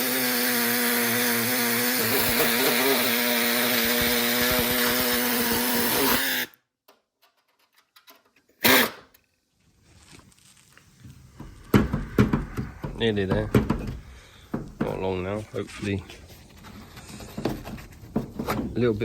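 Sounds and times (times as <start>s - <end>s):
angle grinder cutting sheet metal: 0.0s - 6.5s, 8.6s - 9.0s.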